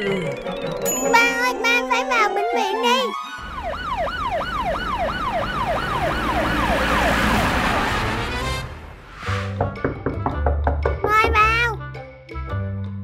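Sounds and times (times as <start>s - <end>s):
ambulance siren wailing: 2.0s - 8.5s
low vehicle rumble: 3.4s - 9.9s.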